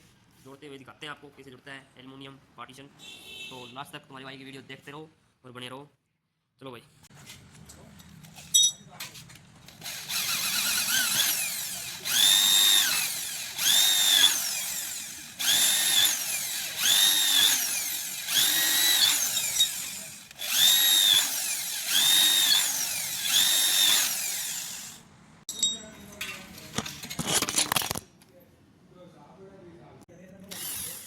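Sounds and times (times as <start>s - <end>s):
electric drill bursts: 9.8s - 25.0s, 30.5s - 31.0s.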